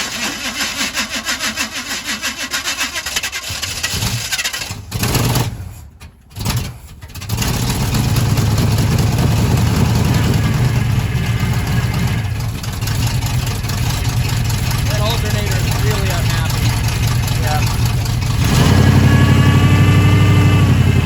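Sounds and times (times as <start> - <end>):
car engine starting and running: 0.0 - 21.0
starter cranking engine: 0.0 - 21.0.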